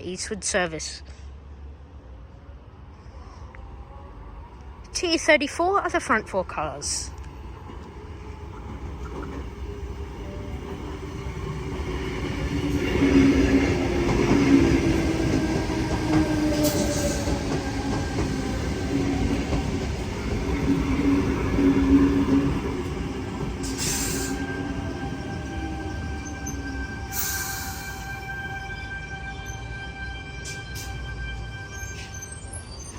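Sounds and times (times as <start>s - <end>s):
short hissing: 23.6s - 24.4s.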